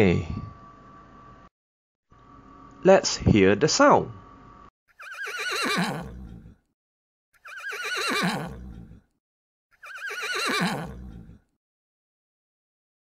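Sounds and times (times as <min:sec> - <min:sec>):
horse whinnying: 0:04.9 - 0:06.6, 0:07.4 - 0:09.0, 0:09.8 - 0:11.4.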